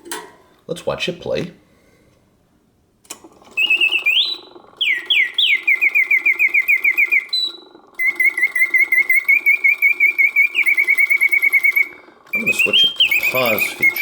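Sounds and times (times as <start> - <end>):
clockwork mechanism whirring: 3.1 - 14.0
mechanical bird whistle warbling: 3.5 - 14.0.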